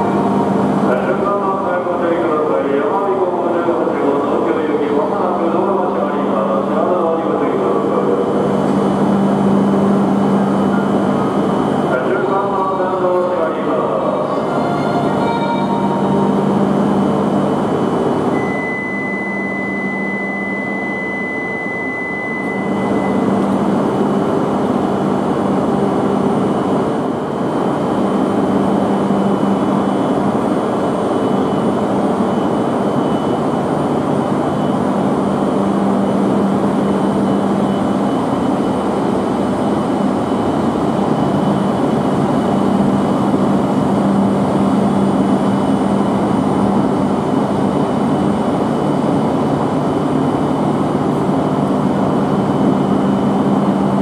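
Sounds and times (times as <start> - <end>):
train hum: 0.0 - 18.4
thin high tone: 13.8 - 17.1.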